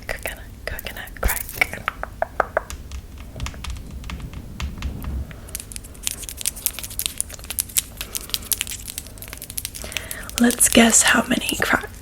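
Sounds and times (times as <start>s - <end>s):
low handling rumble: 1.6s - 8.1s
crisp clicks and crinkles: 2.6s - 12.0s.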